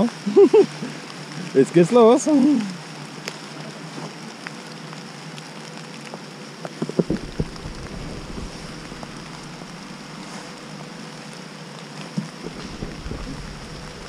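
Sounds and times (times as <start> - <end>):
rain pattering on leaves: 0.0 - 14.0
low rumble: 6.9 - 10.7, 12.4 - 14.0
bumps and scuffs of climbing: 12.2 - 14.0.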